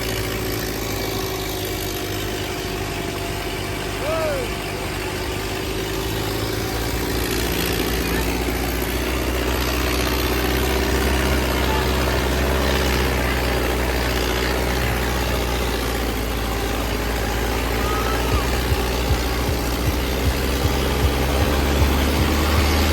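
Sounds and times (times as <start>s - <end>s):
tractor diesel engines rumbling: 0.0s - 22.9s.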